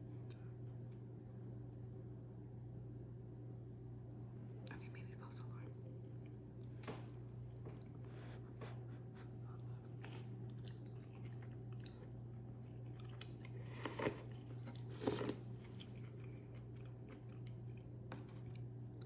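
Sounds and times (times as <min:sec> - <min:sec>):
chewing and crunchy bites: 0:09.4 - 0:19.0.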